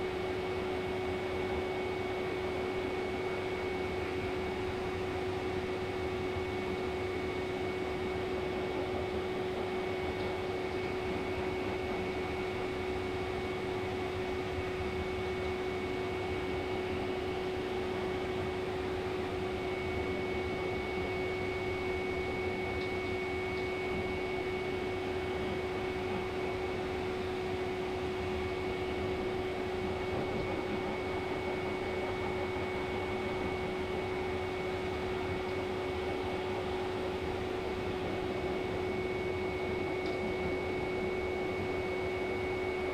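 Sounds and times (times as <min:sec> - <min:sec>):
motor hum with high whine: 0:00.0 - 0:42.9
pet dryer blowing air: 0:14.1 - 0:42.9.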